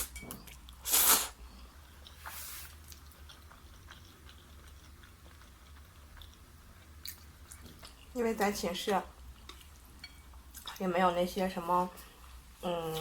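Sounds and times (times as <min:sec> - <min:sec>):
person chewing food: 0:00.0 - 0:08.2, 0:09.2 - 0:10.8.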